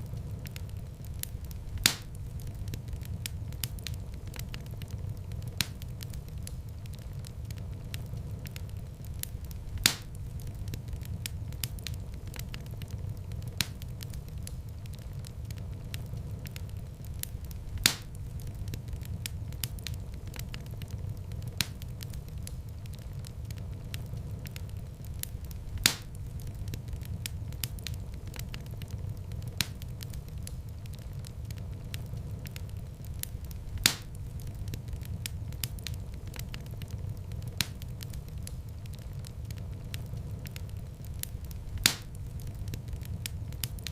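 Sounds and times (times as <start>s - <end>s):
wood fire crackling: 0.0s - 43.9s
loud fire pop: 1.8s - 2.2s, 9.8s - 10.2s, 17.8s - 18.2s, 25.8s - 26.2s, 33.8s - 34.2s, 41.8s - 42.2s.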